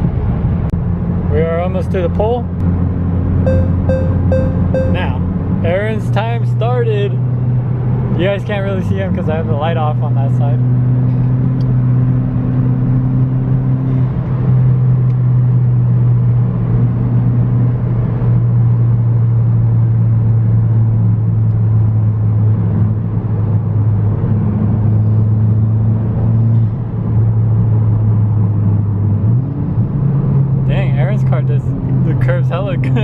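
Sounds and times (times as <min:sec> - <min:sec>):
road noise: 0:00.0 - 0:33.0
car engine drone: 0:02.2 - 0:08.0.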